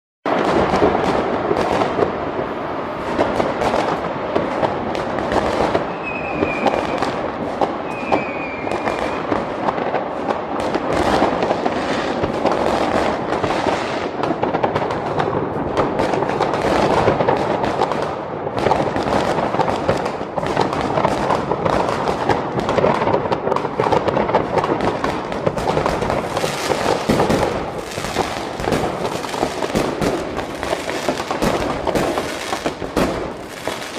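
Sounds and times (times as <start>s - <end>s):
fireworks crackling and banging: 0.2s - 33.9s
firework whistles: 5.6s - 9.5s.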